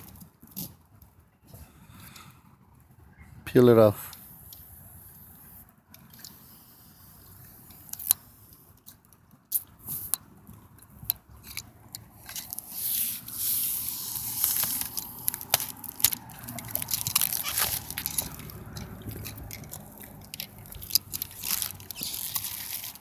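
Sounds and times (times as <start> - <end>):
plastic sheeting crinkling: 12.2 - 23.0
plastic tearing rustle: 12.2 - 23.0.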